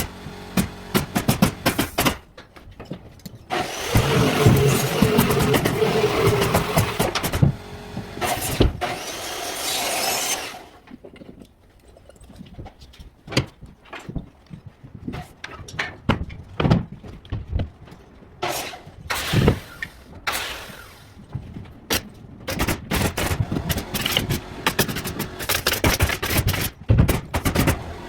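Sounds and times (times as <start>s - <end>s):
power tool running: 0.0s - 2.0s, 3.5s - 10.8s, 23.4s - 25.8s, 27.6s - 28.0s
timber and tools clattering: 0.0s - 20.2s.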